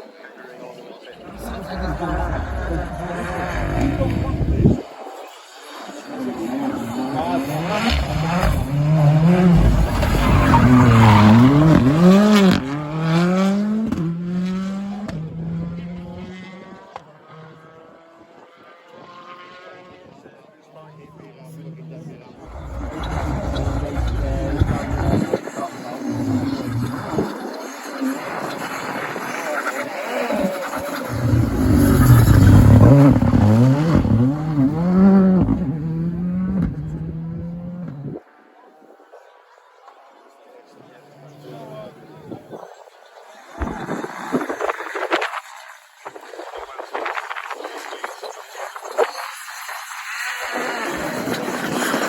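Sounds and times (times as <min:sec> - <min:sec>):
rally car engine revving: 0:01.2 - 0:20.0, 0:21.5 - 0:38.2.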